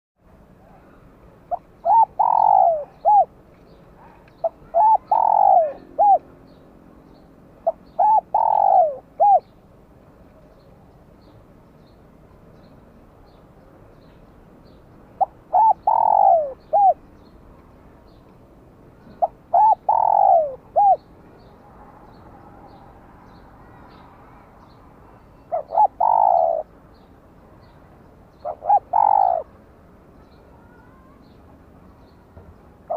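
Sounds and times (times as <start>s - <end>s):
dove cooing: 0.7s - 3.3s, 4.4s - 6.3s, 7.6s - 9.4s, 15.2s - 17.0s, 19.2s - 21.0s, 25.5s - 26.7s, 28.4s - 29.5s.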